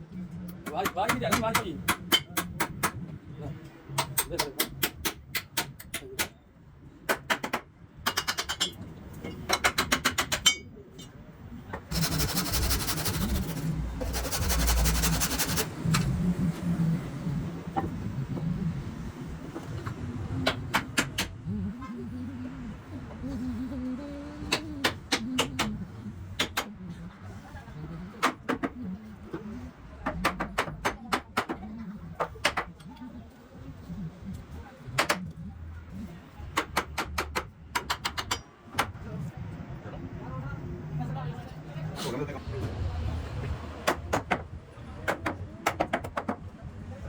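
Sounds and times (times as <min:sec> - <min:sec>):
dense scraping noise: 0:11.9 - 0:16.1.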